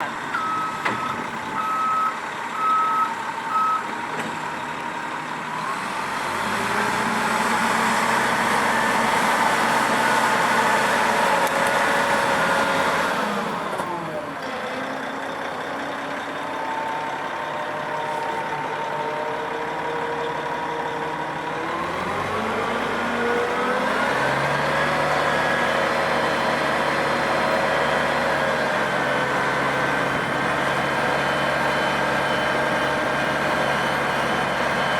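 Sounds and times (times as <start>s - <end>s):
diesel engine revving: 0.0s - 34.9s
reversing alarm beeps: 0.3s - 3.9s, 31.0s - 34.9s.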